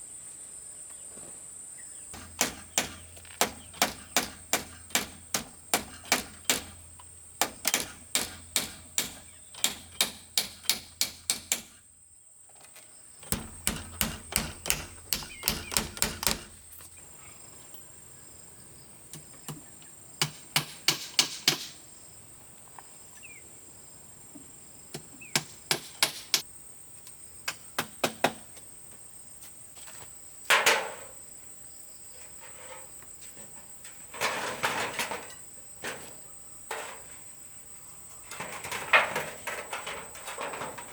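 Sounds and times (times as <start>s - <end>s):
hand tool knocking: 2.2s - 6.8s, 13.2s - 16.6s
rough noisy bursts: 13.2s - 16.7s.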